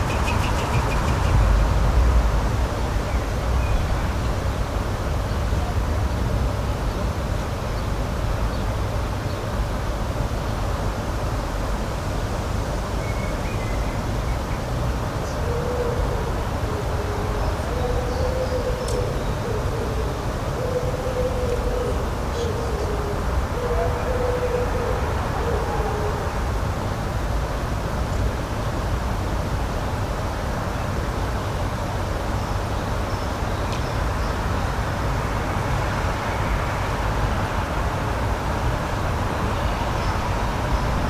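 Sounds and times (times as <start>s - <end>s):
steady rumbling noise: 0.0s - 6.8s, 36.8s - 41.0s.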